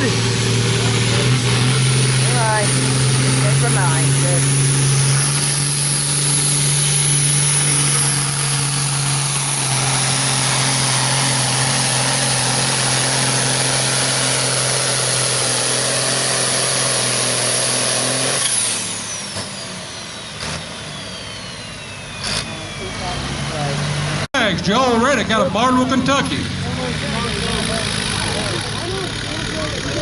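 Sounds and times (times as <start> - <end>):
diesel tractor engine running: 0.0 - 30.0
turbo whine: 0.8 - 23.7.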